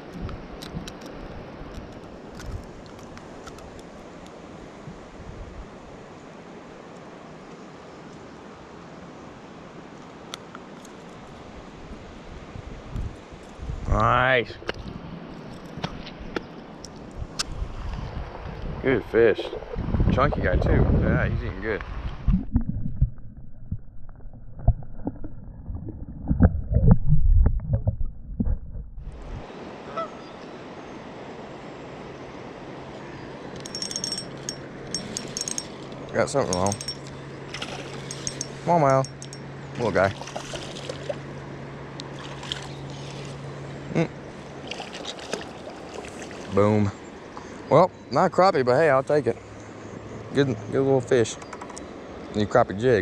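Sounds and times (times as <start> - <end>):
muffled underwater water sloshing: 22.1 - 29.4, 37.5 - 41.4, 44.4 - 46.8
low rumble: 22.2 - 29.5
underwater knocks and clicks: 22.3 - 25.3, 26.2 - 29.0
river water rushing: 29.5 - 47.7.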